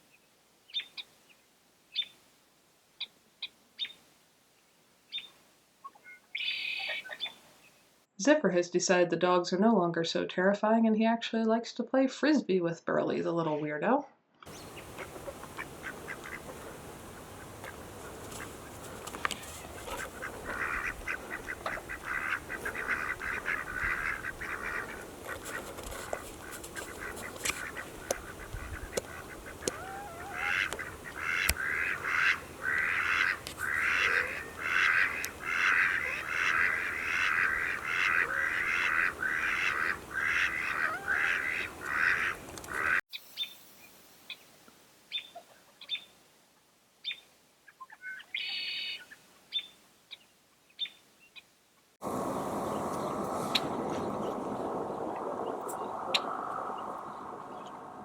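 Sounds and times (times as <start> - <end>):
ducks quacking: 14.5 - 43.0.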